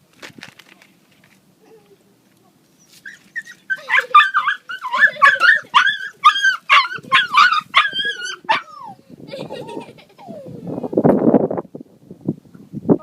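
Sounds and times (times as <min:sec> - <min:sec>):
dog whining and yipping: 0:02.8 - 0:09.0, 0:10.2 - 0:10.9.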